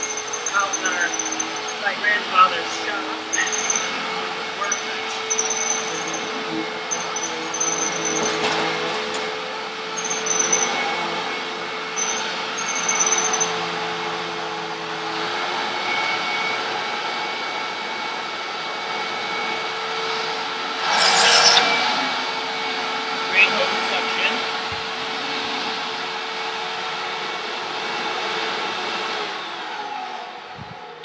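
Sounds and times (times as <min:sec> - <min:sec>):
vacuum cleaner running: 0:00.0 - 0:31.0
high whistle: 0:20.8 - 0:22.4.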